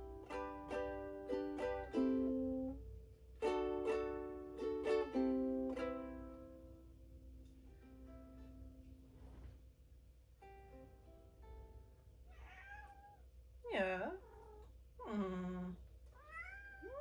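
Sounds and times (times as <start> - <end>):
ukulele chords strummed: 0.0 - 9.2, 10.2 - 12.2.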